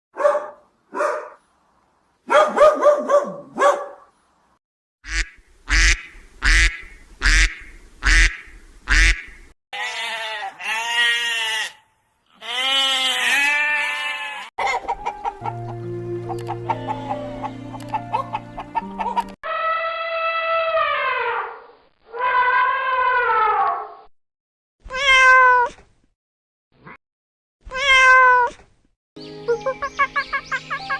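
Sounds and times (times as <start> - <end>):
animal bleating: 9.7 - 14.5, 16.6 - 17.6
music: 14.6 - 19.4, 29.2 - 30.9
animal honking calls: 16.5 - 20.4.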